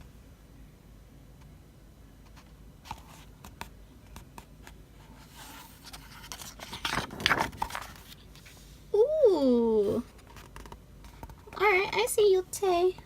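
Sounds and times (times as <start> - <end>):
paper pages rustling: 2.3 - 8.6, 10.0 - 11.5.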